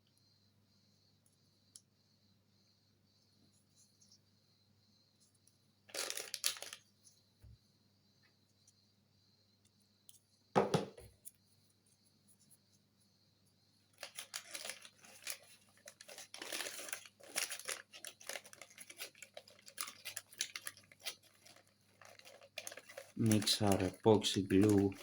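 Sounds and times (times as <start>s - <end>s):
crinkling and rustling plastic: 5.9s - 6.9s, 13.9s - 25.0s
single knock: 10.6s - 11.1s.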